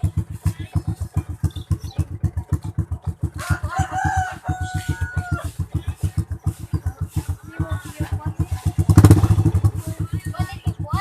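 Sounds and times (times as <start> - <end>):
motorcycle engine idling: 0.0 - 11.0
rooster crowing: 3.4 - 5.6.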